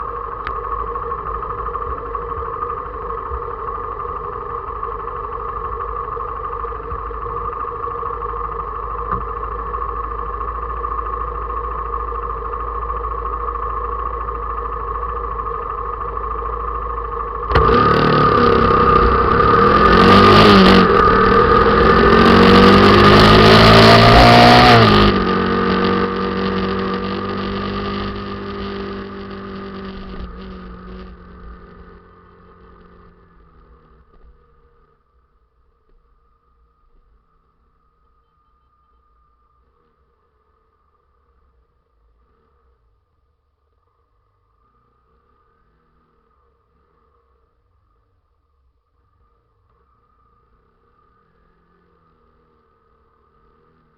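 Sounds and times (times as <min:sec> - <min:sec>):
motorcycle engine revving: 0:00.0 - 0:35.1
rushing noise: 0:17.5 - 0:26.8.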